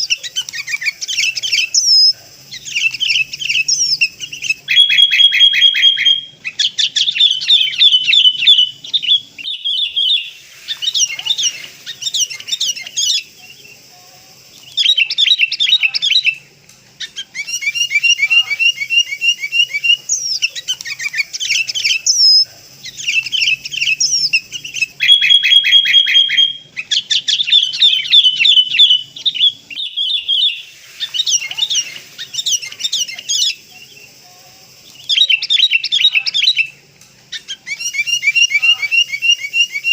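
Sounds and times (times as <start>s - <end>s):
birds chattering: 0.0s - 39.9s
bird whistled note: 4.7s - 6.3s, 25.0s - 26.6s.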